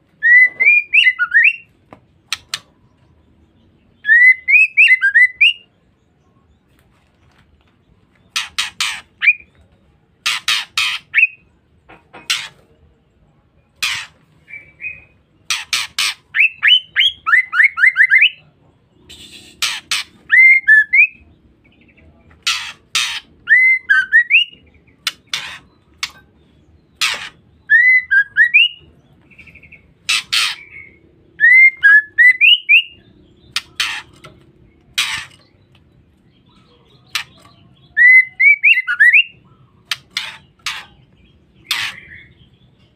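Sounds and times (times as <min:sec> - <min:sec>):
bird rasping calls: 0:08.3 - 0:09.5, 0:10.2 - 0:11.4, 0:13.8 - 0:14.2, 0:14.8 - 0:17.5, 0:19.1 - 0:20.7, 0:22.4 - 0:26.2, 0:27.0 - 0:28.7, 0:29.6 - 0:35.6, 0:37.0 - 0:42.4.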